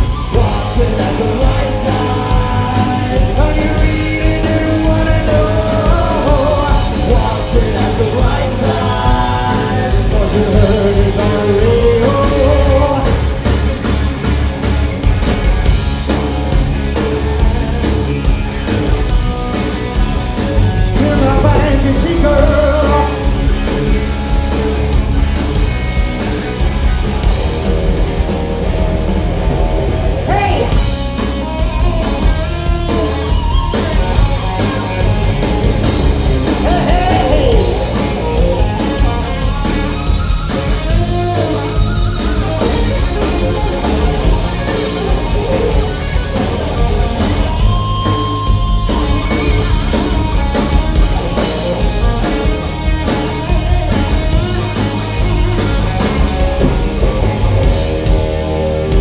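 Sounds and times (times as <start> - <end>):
drum kit: 0.0 - 59.0
lead guitar bending notes: 0.0 - 59.0.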